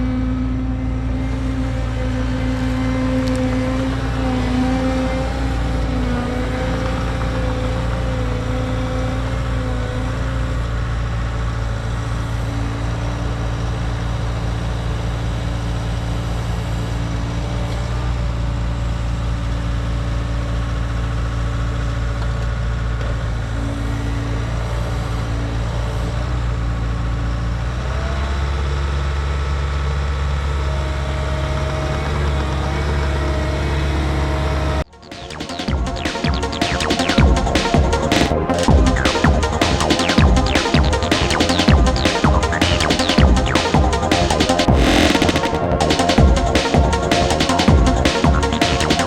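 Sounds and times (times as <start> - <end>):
machine engine running: 31.4 - 49.0.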